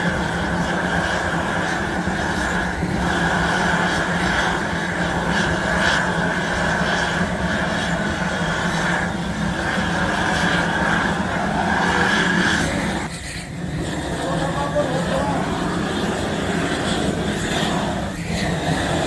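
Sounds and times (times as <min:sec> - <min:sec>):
machinery high whine: 0:00.0 - 0:19.0.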